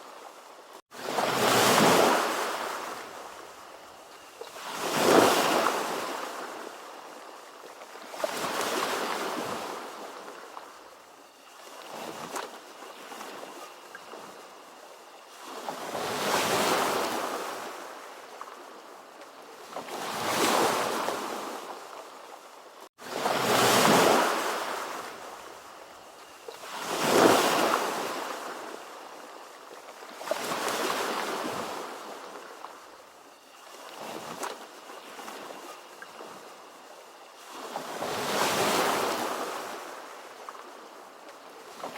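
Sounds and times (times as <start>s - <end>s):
ocean waves breaking: 0.9s - 3.4s, 4.4s - 7.0s, 23.0s - 25.5s.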